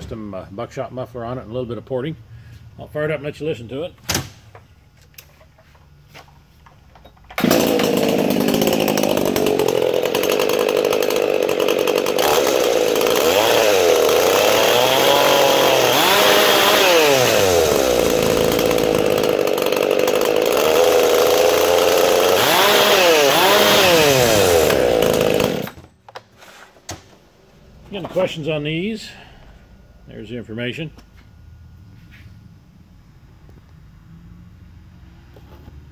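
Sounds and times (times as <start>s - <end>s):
chainsaw revving: 7.4s - 25.8s.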